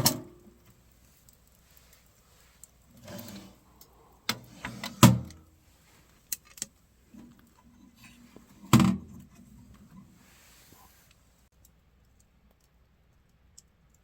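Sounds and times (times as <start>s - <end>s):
short rustle: 7.0s - 11.5s.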